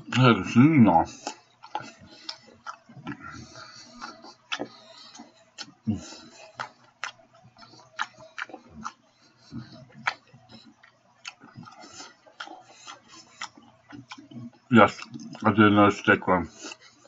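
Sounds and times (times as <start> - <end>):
person chewing open-mouthed: 0.0 - 17.0.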